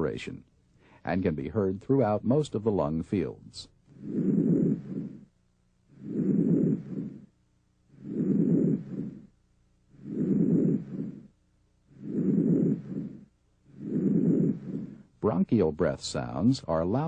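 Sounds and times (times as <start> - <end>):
breath sounds through chest: 3.9 - 5.3, 5.9 - 15.2.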